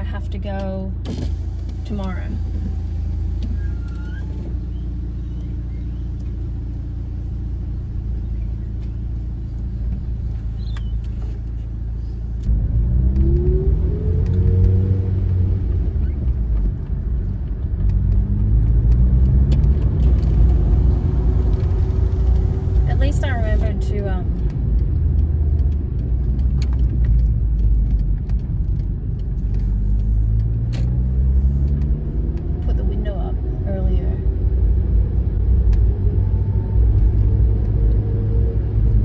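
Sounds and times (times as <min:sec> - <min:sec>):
car engine idling and accelerating: 0:00.0 - 0:39.0.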